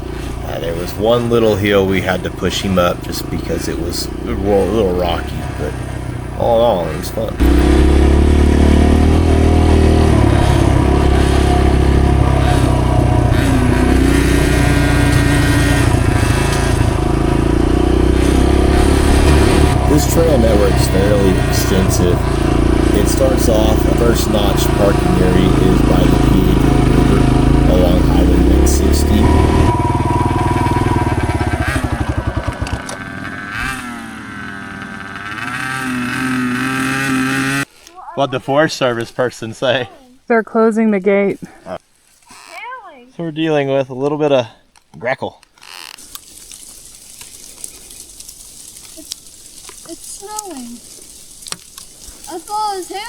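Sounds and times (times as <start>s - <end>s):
high thin engine whine: 0.0s - 37.7s
dirt bike engine running: 0.0s - 38.2s, 46.0s - 53.0s.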